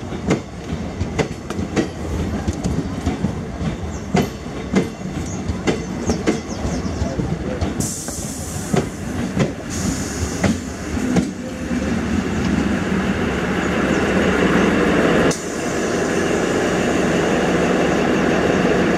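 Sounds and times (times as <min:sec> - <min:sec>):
train wheels clicking on rail joints: 0:00.0 - 0:12.8.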